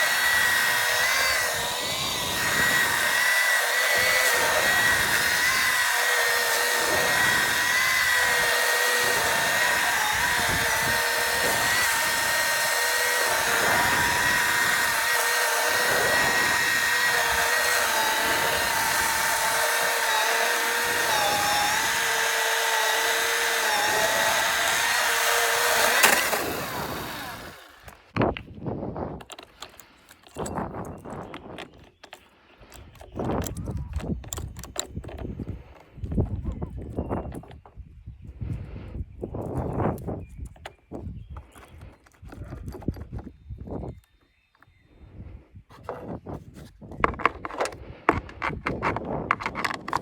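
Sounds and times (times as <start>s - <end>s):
electric chainsaw whining: 0.0s - 28.1s.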